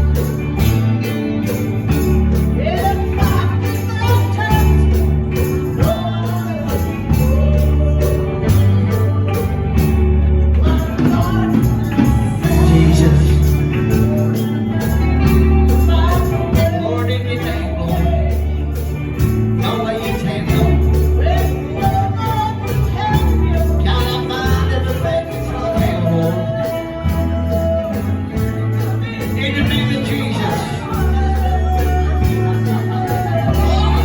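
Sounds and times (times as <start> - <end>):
deep bass notes: 0.0 - 34.0
tambourine beat: 0.0 - 34.0
voices singing: 0.0 - 34.0.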